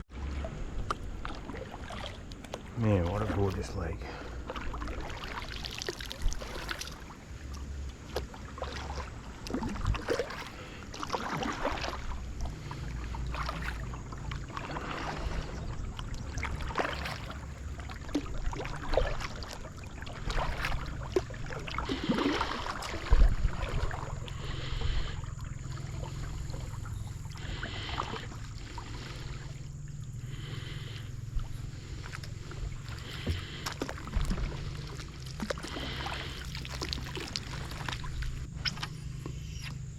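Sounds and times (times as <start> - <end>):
paddle splashing in water: 0.0 - 39.9
low rumble: 11.6 - 39.9.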